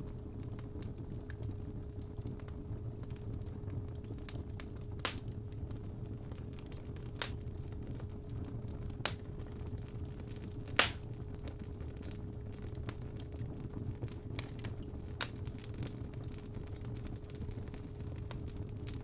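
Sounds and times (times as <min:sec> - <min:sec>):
fire crackling: 0:00.0 - 0:19.0
sharp fire pops: 0:09.0 - 0:09.4, 0:10.7 - 0:12.1.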